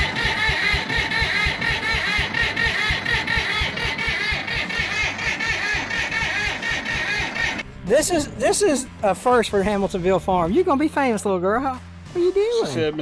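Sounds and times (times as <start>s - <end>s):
bulldozer engine running: 0.0s - 7.8s.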